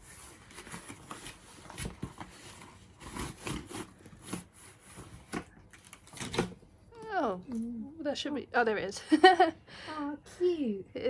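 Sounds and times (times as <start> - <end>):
packaging rustling and clicking: 0.0 - 6.7.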